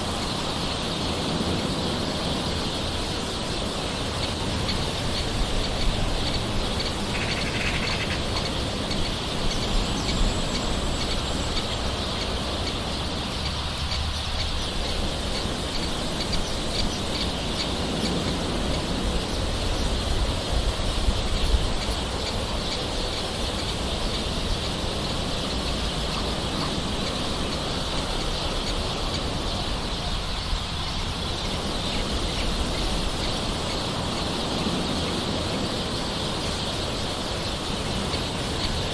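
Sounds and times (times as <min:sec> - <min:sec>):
birds calling: 0:00.0 - 0:38.9.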